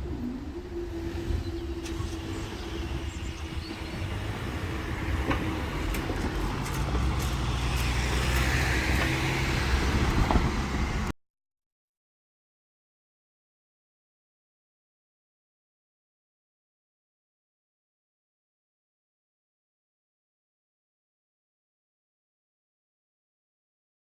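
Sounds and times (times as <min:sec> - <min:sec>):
vehicle engine rumble: 0:00.0 - 0:11.2.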